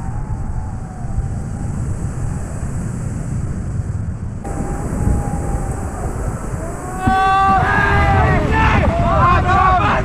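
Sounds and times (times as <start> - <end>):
wind buffeting microphone: 0.0 - 10.0
rushing river water: 4.5 - 10.0.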